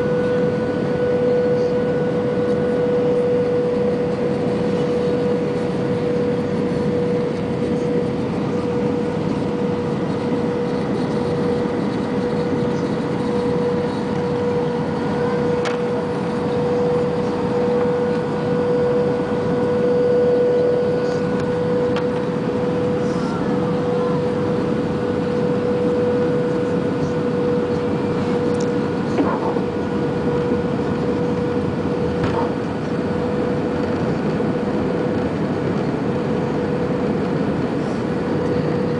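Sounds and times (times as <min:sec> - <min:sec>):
airliner engine and airflow noise: 0:00.0 - 0:38.9.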